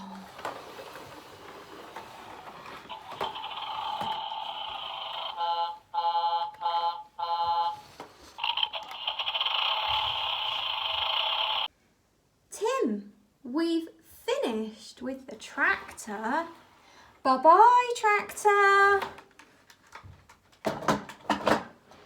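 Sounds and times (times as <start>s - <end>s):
toy steady buzzing tone: 2.9s - 7.4s, 8.4s - 11.7s.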